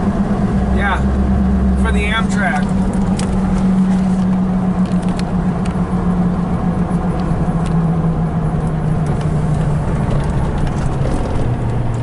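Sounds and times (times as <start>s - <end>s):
car engine hum: 0.0s - 12.0s
road rumble: 0.0s - 12.0s.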